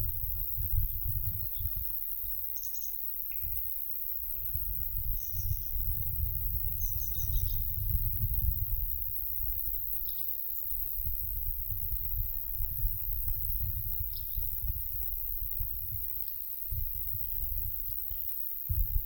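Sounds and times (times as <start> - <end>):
wind buffeting microphone: 0.0 - 2.4, 4.3 - 10.1, 10.7 - 19.0
bird calls and chirps: 6.8 - 7.6.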